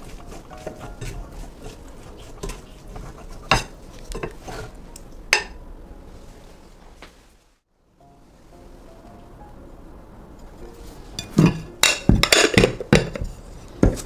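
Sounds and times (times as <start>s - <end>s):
metal spatula scraping a frying pan: 0.0s - 4.8s.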